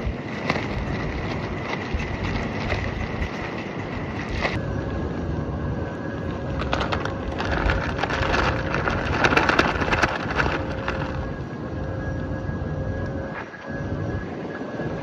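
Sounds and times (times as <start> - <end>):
fabric flapping in wind: 0.0 - 15.0
wind rumbling on microphone: 0.0 - 15.0.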